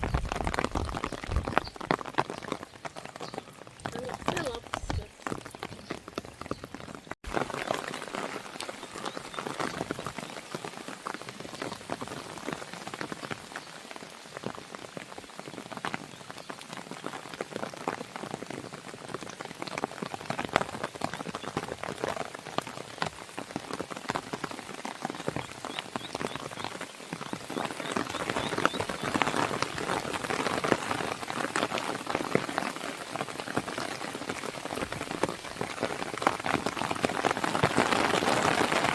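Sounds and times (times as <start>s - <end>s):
rain pattering on a window: 0.0s - 38.9s.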